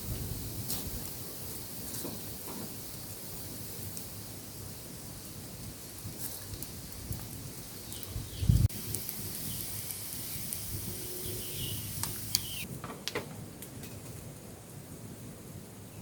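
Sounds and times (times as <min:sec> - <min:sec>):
steady rain hiss: 0:00.0 - 0:16.0
short bird chirps: 0:09.4 - 0:12.7.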